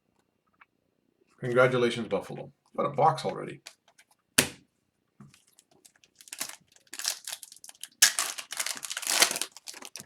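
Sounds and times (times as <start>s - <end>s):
plastic wrapper crinkling and tearing: 5.4s - 10.0s.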